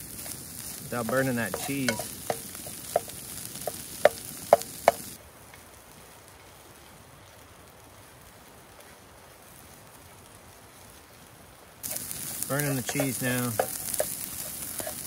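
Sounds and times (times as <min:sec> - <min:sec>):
food sizzling in a pan: 0:00.0 - 0:05.2, 0:11.8 - 0:15.0
faint steady hiss: 0:00.0 - 0:15.0
utensil clinking against pan: 0:01.0 - 0:03.1, 0:12.6 - 0:15.0.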